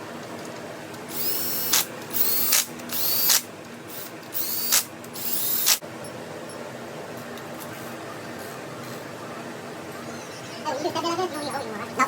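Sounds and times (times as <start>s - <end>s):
power tool motor whine: 1.1s - 5.8s.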